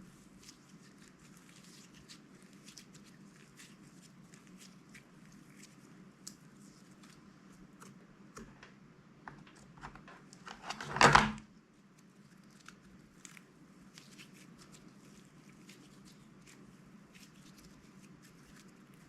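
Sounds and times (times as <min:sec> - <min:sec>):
plastic clicking and crinkling: 0:08.4 - 0:11.4.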